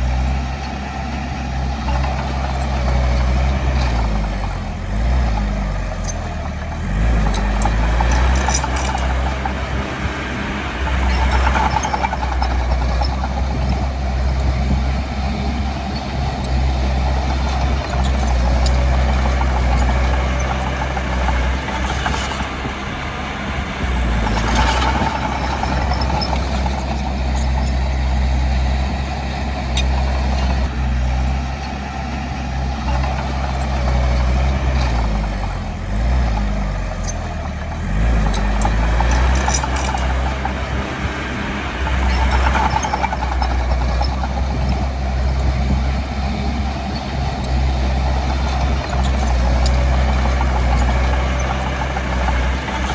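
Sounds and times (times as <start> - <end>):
diesel engine drone: 0.0 - 52.9
machine squeaks and clanks: 0.0 - 52.9.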